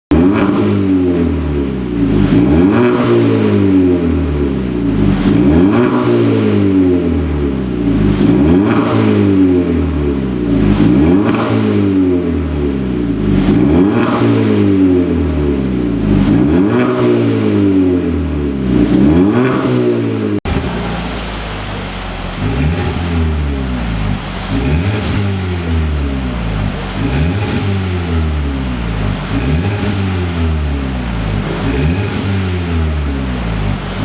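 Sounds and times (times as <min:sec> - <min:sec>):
car engine revving: 0:00.0 - 0:34.0
car engine idling: 0:00.2 - 0:05.8, 0:06.6 - 0:11.2, 0:20.4 - 0:34.0.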